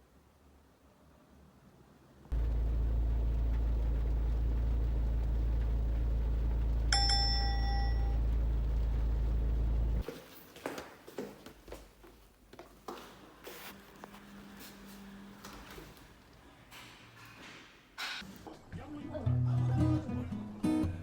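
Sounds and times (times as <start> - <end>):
steady low rumble: 2.3 - 10.0
bell-like ding: 6.9 - 8.2.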